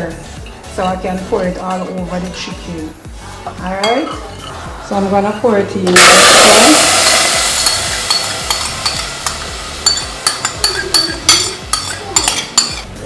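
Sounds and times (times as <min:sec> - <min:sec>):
sauce sizzling in a saucepan: 0:00.1 - 0:13.0
spoon scraping and tapping pan: 0:03.3 - 0:13.0.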